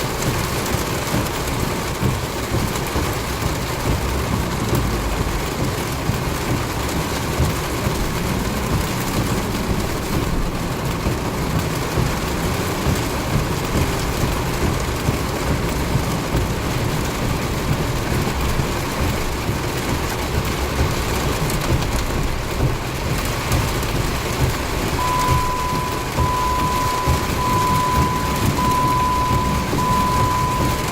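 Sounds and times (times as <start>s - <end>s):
heavy rain pouring: 0.0s - 30.9s
low thunder rumble: 25.0s - 30.9s
steady high tone: 25.0s - 30.9s.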